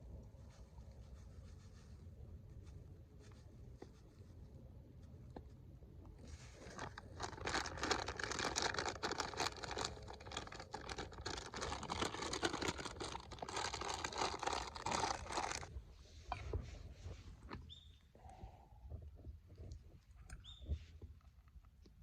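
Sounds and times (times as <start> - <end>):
crumpled packaging crinkling: 6.2 - 15.7.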